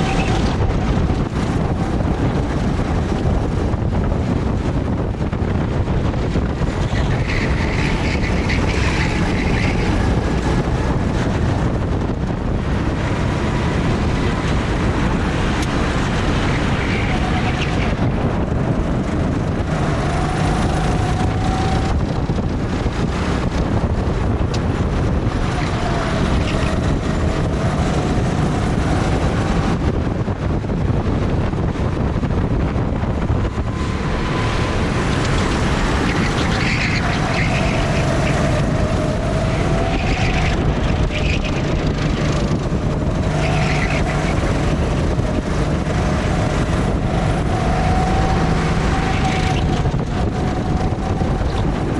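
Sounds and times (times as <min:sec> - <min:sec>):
go-kart engine running: 0:00.0 - 0:51.9
wind buffeting microphone: 0:00.0 - 0:51.9.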